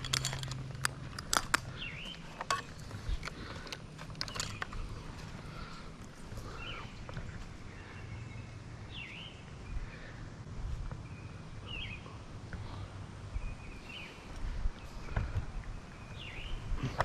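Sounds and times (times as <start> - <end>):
bird chirping: 1.1 - 3.6, 4.2 - 17.0.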